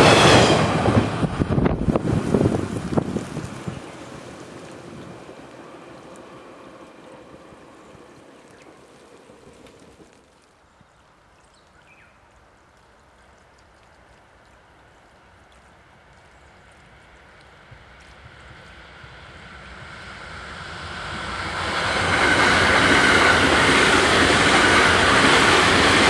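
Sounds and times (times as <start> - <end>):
train rumble passing: 0.0 - 10.5, 16.6 - 26.0
faint outdoor hiss: 1.5 - 21.6.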